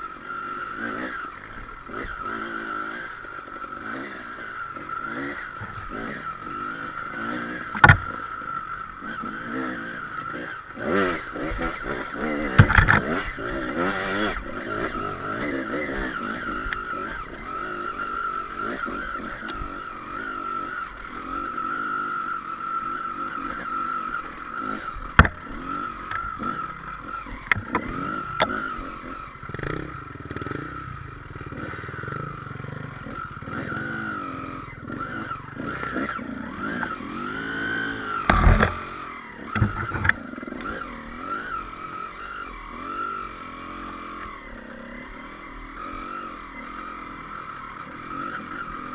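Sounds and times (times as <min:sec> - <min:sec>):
motorcycle engine revving: 0:00.0 - 0:48.9
knocks and clatter from ground: 0:38.2 - 0:38.9, 0:39.5 - 0:40.2.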